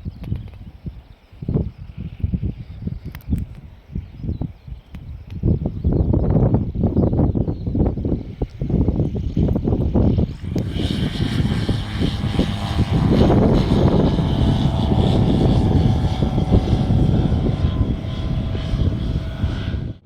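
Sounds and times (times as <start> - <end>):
propeller aeroplane engine running: 5.0 - 20.0.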